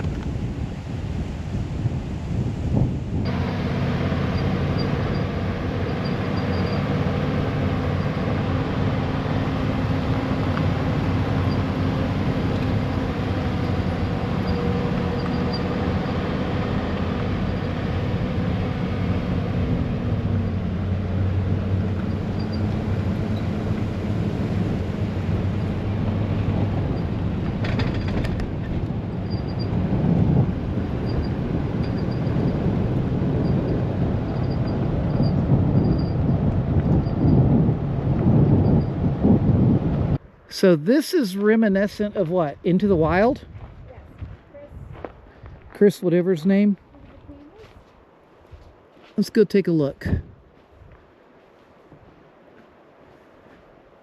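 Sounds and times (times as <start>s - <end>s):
road noise: 0.0s - 54.0s
vehicle engine running: 3.1s - 40.2s.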